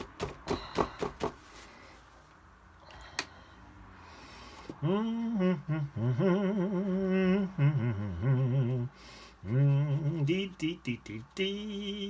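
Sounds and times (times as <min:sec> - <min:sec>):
man humming: 0:04.7 - 0:12.0.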